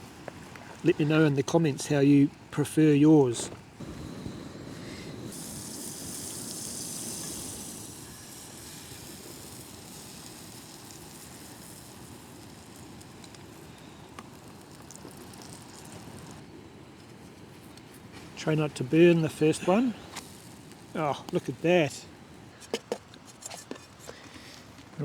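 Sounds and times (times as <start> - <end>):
batter sizzling in frying pan: 3.2 - 22.7.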